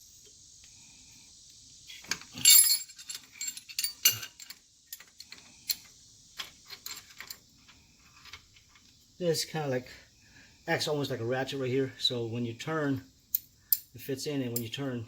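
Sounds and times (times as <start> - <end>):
metal tools clinking: 2.1 - 7.4.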